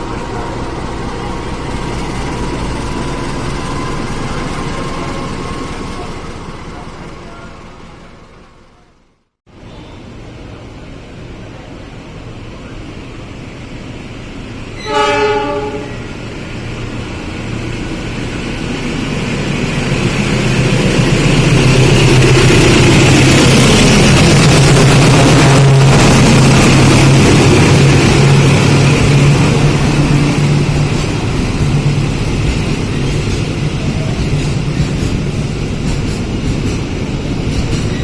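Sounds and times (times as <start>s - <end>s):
wheel and rail noise: 9.6s - 38.0s
train horn blast: 14.8s - 16.2s.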